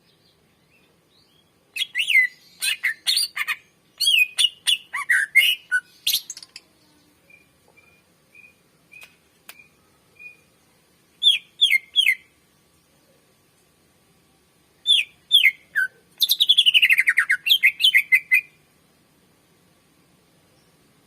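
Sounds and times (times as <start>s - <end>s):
bird singing: 0.0s - 13.1s, 14.8s - 18.6s.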